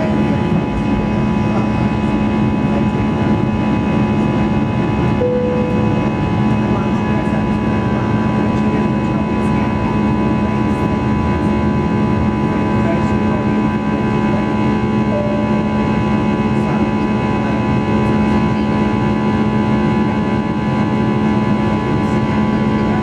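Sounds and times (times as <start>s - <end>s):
jet engine drone in cabin: 0.0s - 23.0s
jet engine whine: 0.0s - 23.0s
short tone: 5.2s - 6.3s, 15.0s - 15.9s.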